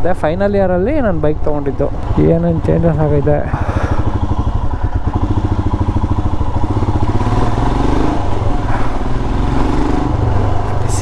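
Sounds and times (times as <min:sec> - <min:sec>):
motorcycle engine running: 0:00.8 - 0:11.0.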